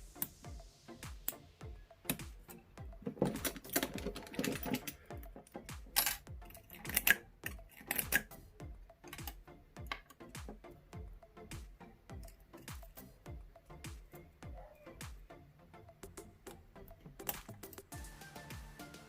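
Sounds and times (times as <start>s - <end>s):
background music with steady beat: 0.0s - 19.0s
lock picks clicking and scraping: 3.0s - 8.4s.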